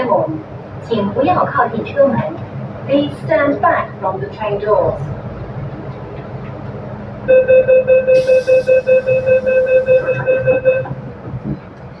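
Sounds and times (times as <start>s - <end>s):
rapid warning beeps: 7.3s - 10.9s.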